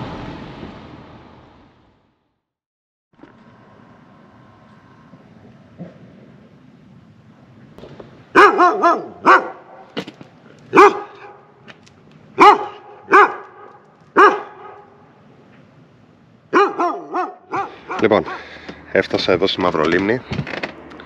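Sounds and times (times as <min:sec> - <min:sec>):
dog barking: 0:08.3 - 0:10.0, 0:10.7 - 0:11.5, 0:12.4 - 0:15.0, 0:16.5 - 0:18.5.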